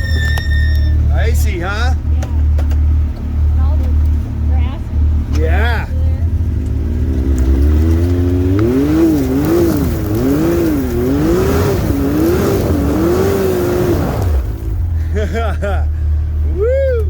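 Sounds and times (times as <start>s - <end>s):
engine idling drone: 0.0s - 17.0s
utility vehicle engine revving: 0.0s - 17.0s.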